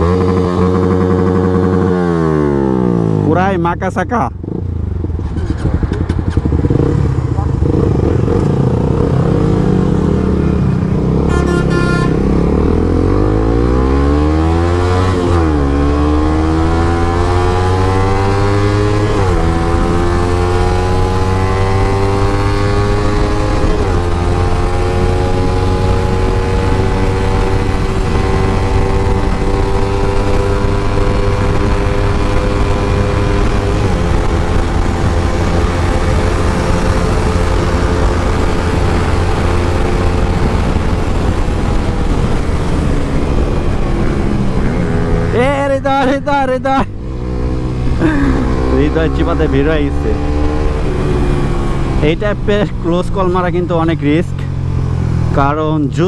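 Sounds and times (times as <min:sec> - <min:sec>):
motorcycle engine accelerating: 0:00.0 - 0:56.0
horn: 0:11.2 - 0:12.3.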